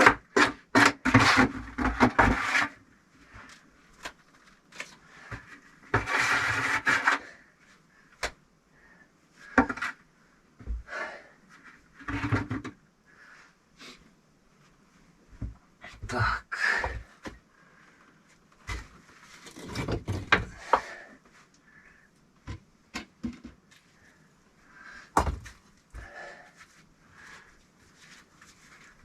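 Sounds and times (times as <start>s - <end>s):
bricks scraping: 5.9s - 7.4s
bricks knocking and clunking: 18.6s - 21.0s, 25.2s - 26.1s.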